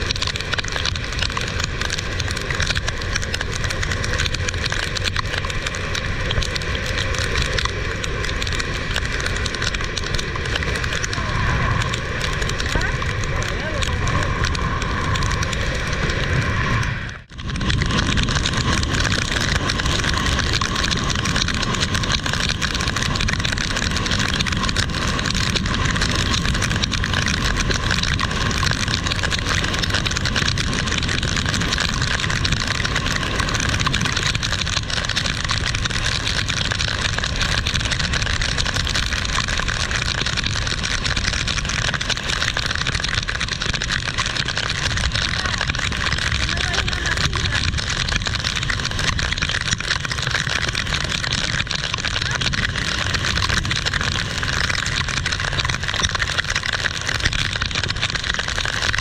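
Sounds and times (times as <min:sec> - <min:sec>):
heavy rain hissing: 0:00.0 - 0:58.3.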